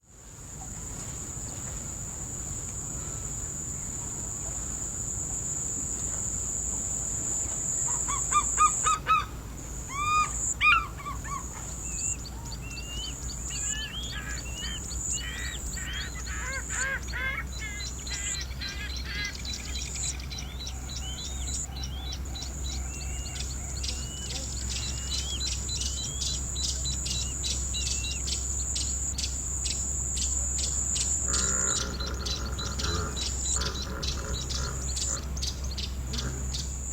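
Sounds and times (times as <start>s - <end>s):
low steady rumble: 0.2s - 36.9s
insect buzz: 0.5s - 21.7s, 22.7s - 36.9s
birds calling: 7.3s - 36.9s
loud honking bird calls: 13.5s - 19.4s, 31.1s - 36.9s.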